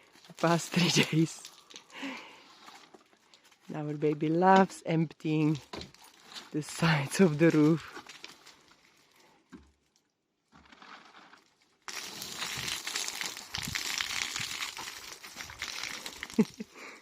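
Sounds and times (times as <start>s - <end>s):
water spilling and splashing: 0.0s - 2.6s, 11.8s - 16.9s
plastic tarpaulin crinkling: 0.0s - 4.1s, 5.4s - 16.7s.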